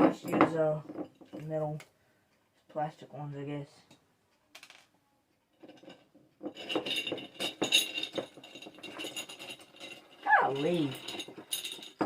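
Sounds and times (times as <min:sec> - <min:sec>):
hands handling copper wire: 0:05.5 - 0:12.0.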